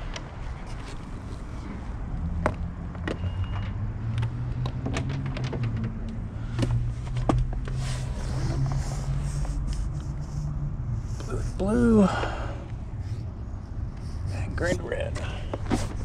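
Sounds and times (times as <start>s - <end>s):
steady low hum: 6.1s - 16.0s.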